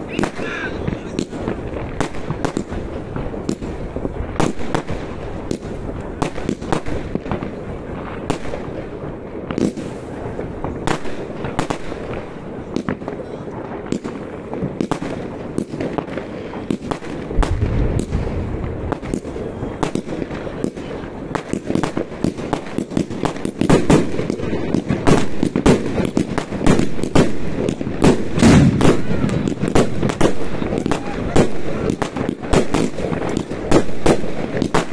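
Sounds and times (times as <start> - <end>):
fireworks banging and crackling: 0.0 - 34.9
continuous rumble: 17.3 - 21.3.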